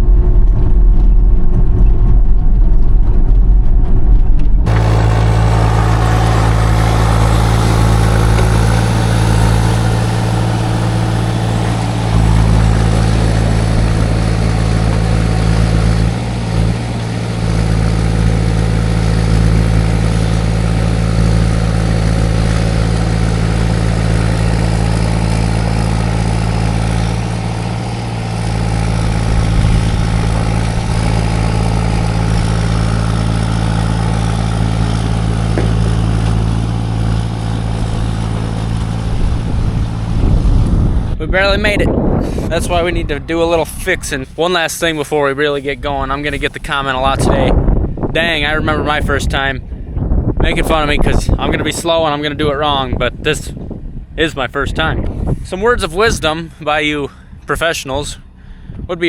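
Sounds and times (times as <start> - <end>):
diesel engine running under load: 0.0 - 59.0.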